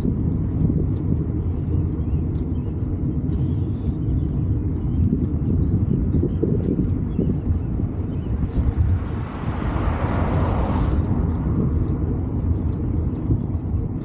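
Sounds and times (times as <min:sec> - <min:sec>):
wind rumble on microphone: 0:00.0 - 0:14.0
vehicle passing: 0:08.4 - 0:13.8.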